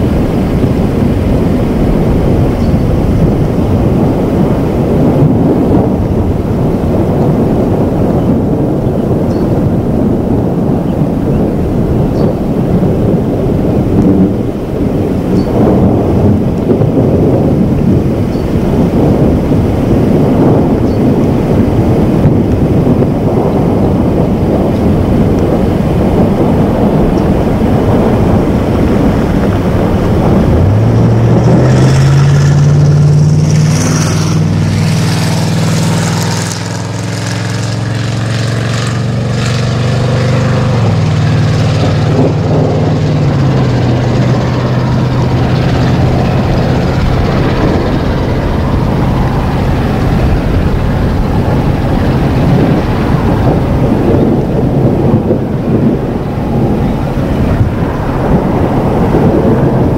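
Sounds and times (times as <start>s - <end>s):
low rumbling noise: 0.0s - 59.9s
vehicle engine running: 0.0s - 59.9s.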